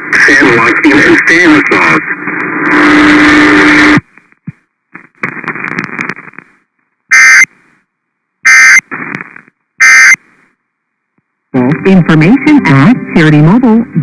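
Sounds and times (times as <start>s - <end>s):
radio static hiss: 0.0s - 10.6s
digital data bursts: 9.8s - 10.2s.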